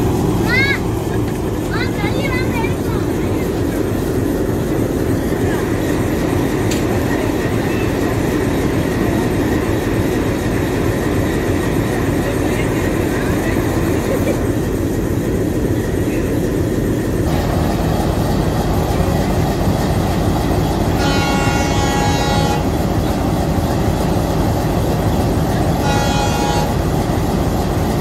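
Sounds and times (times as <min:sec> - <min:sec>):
train rumbling: 0:00.0 - 0:28.0
locomotive horn blasts: 0:20.8 - 0:22.9, 0:25.7 - 0:27.1.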